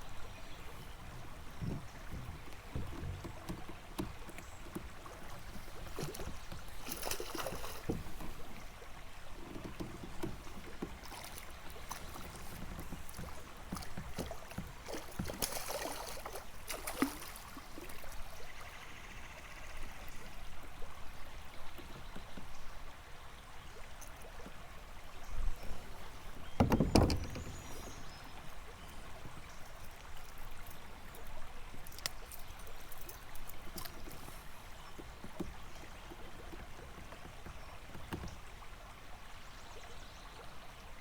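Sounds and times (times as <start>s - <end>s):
river flowing: 0.0s - 18.7s
water splashing against kayak: 0.0s - 18.9s, 24.0s - 41.0s.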